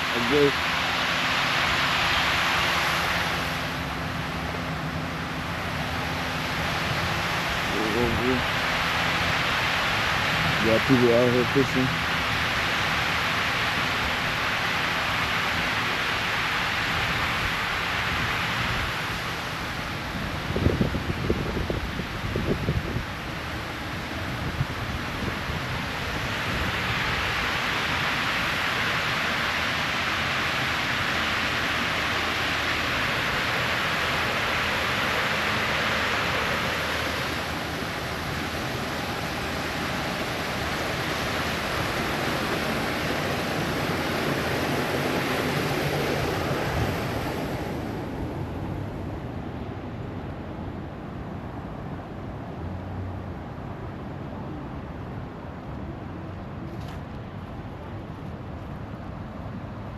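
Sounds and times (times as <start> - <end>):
water pouring over waterfall: 24.6 - 47.2.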